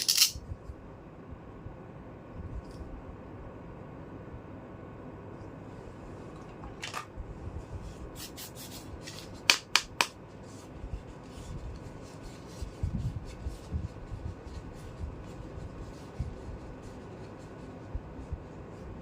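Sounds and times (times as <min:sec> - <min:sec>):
plastic toy pieces clicking: 0:00.0 - 0:00.4.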